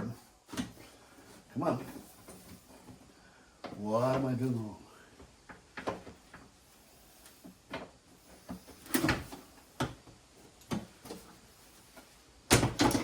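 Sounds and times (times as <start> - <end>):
folding table knocks and clicks: 12.5 - 13.0.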